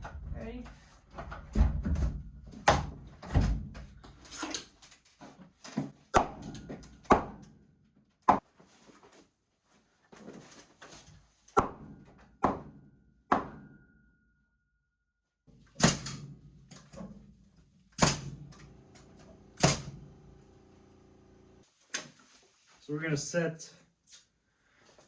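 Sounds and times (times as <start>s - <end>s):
knocks and thuds on lumber: 1.2s - 3.8s, 11.6s - 13.7s.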